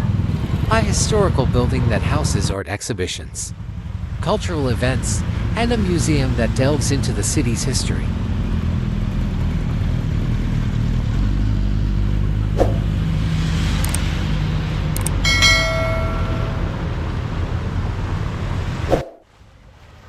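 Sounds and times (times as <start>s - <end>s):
rumble of passing cars: 0.0s - 20.0s
sharp click: 13.8s - 14.0s, 15.0s - 15.2s
short pitched tone: 15.1s - 17.2s.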